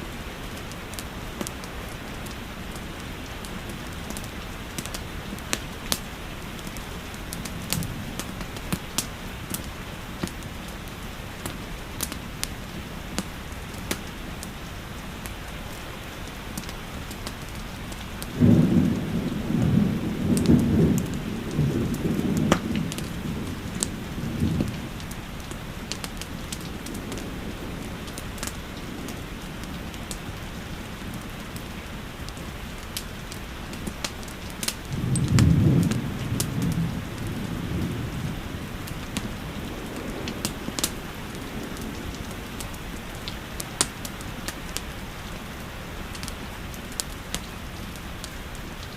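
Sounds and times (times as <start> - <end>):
fireplace crackles: 0.0 - 48.9
steady rain: 0.0 - 48.9
low thunder rolls: 18.3 - 31.7, 34.8 - 43.8.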